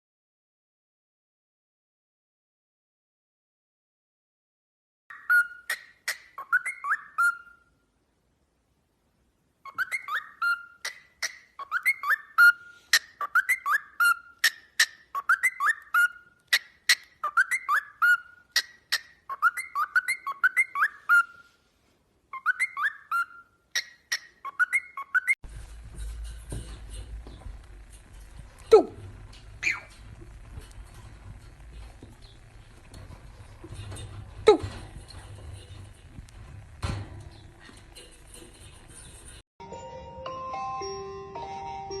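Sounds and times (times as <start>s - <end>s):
bird whistling: 5.1s - 7.6s, 9.7s - 21.4s, 22.3s - 25.4s, 29.6s - 30.0s.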